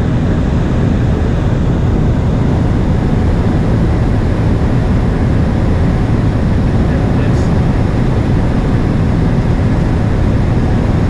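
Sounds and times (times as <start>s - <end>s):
aircraft engines rumbling: 0.0s - 11.0s.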